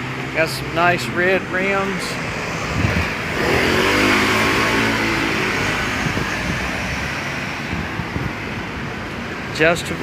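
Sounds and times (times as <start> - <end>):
vehicle engine passing by: 0.0 - 8.4
street traffic noise: 0.0 - 10.0.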